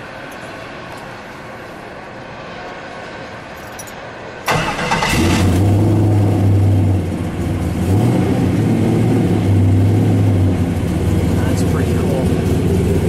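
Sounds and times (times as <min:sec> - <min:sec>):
engine starter cranking: 0:04.5 - 0:05.7
engine idling: 0:08.8 - 0:13.0.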